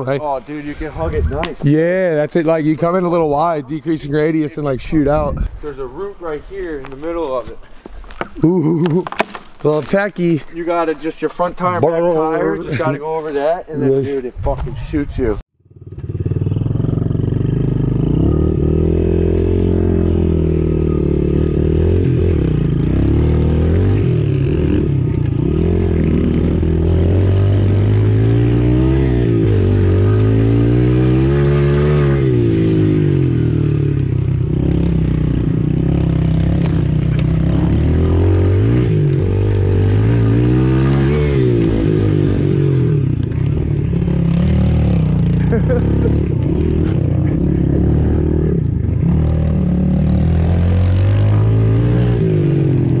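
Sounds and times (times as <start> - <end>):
motorbike engine revving: 15.6 - 53.0.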